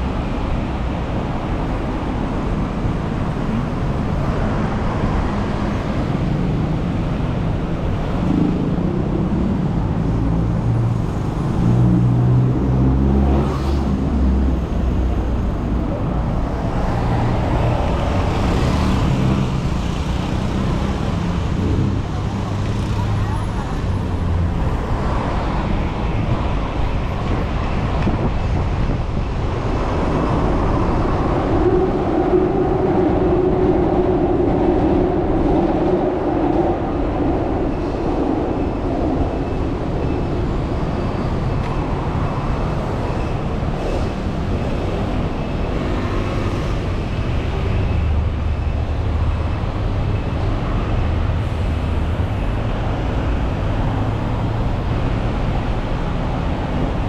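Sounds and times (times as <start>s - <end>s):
city traffic rumble: 0.0s - 57.0s.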